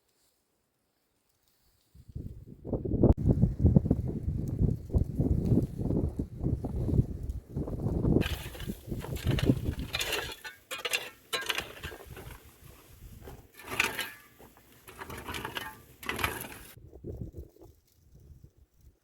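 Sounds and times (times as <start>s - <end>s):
rustling and scraping: 8.2s - 16.8s.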